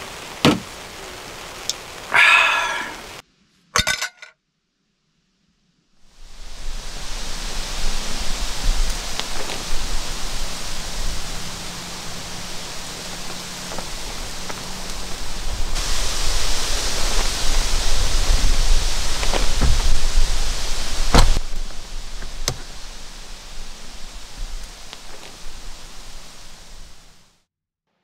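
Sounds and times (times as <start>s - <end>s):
heavy rain hissing: 0.0s - 3.2s, 6.0s - 27.4s
raindrops ticking: 0.0s - 3.2s, 8.8s - 26.0s.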